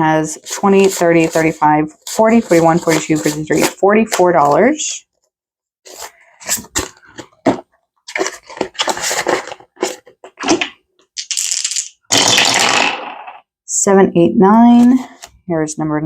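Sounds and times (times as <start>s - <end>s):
paper rustling and crinkling: 5.9s - 10.7s.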